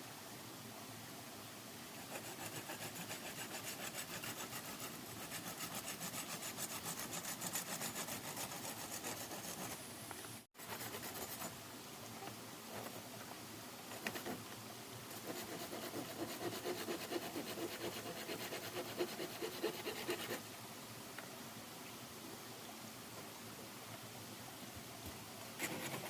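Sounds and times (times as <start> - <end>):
hand saw cutting wood: 2.1 - 9.8, 15.1 - 20.4.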